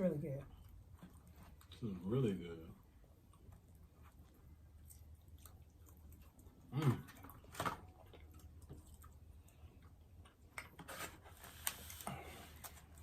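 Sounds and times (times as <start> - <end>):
person chewing: 3.1 - 10.8.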